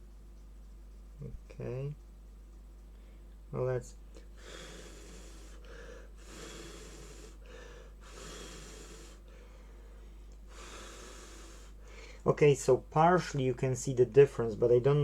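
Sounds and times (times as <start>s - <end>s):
person breathing softly: 4.1s - 12.3s.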